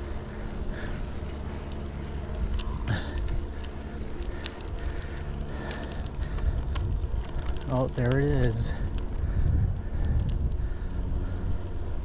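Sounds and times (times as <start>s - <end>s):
bicycle clicks and rattles: 0.0s - 12.0s
bicycle tyres rumbling: 0.0s - 12.0s
wind on microphone: 8.4s - 11.7s.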